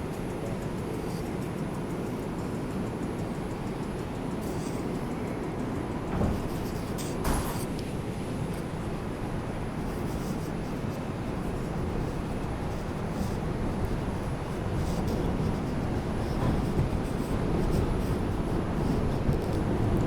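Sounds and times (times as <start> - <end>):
faint ticks: 0.0 - 7.9, 8.5 - 20.0
subway wheels rumbling on rail: 6.0 - 20.0.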